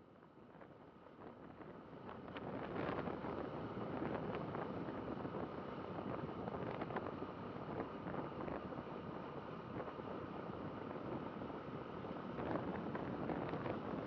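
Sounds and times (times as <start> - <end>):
road and traffic noise: 0.0 - 14.0
wind buffeting microphone: 1.2 - 14.0.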